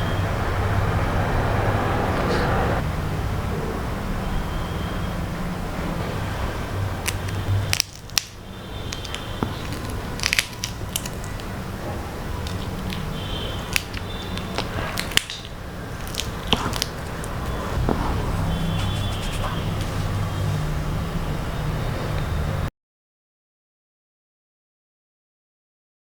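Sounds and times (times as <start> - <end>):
chewing crispy food: 6.9 - 17.8.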